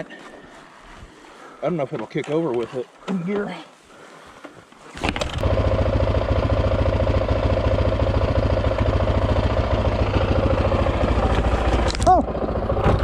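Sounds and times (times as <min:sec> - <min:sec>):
dirt bike engine starting and idling: 0:04.9 - 0:13.0.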